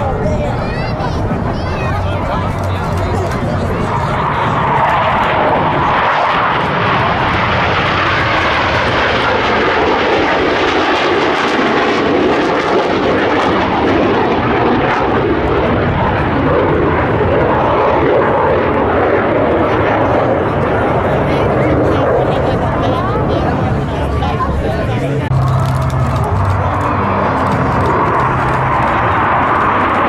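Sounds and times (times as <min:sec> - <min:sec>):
fighter jets flying overhead: 0:00.0 - 0:30.0.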